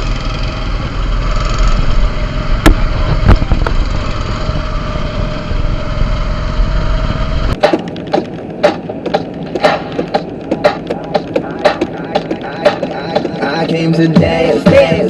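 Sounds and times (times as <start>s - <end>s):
vehicle engine rumble: 0.0s - 14.5s
sharp clicks: 7.5s - 13.4s.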